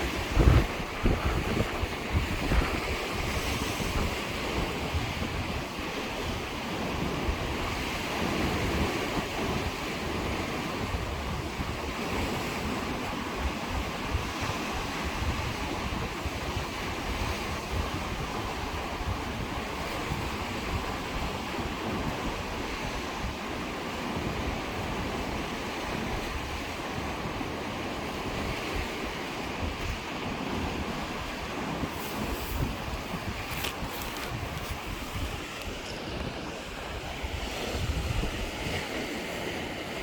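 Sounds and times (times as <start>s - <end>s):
waves breaking on shore: 0.0s - 40.0s
wind buffeting microphone: 0.0s - 40.0s.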